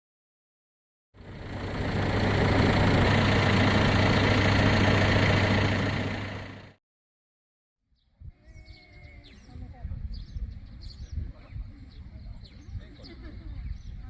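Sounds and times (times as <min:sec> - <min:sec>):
engine humming: 0:01.2 - 0:06.8.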